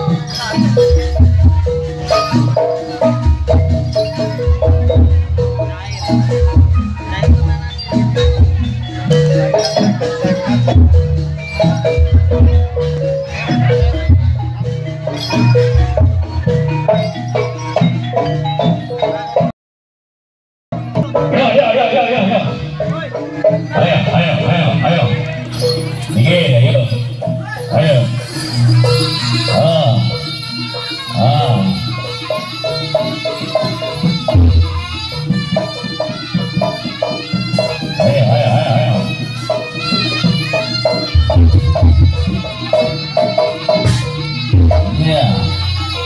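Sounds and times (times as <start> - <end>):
gamelan music: 0.0 - 19.5, 20.8 - 46.0
metal mallet instrument melody: 0.0 - 19.5, 20.8 - 46.0
short pitched percussion notes: 22.2 - 46.0.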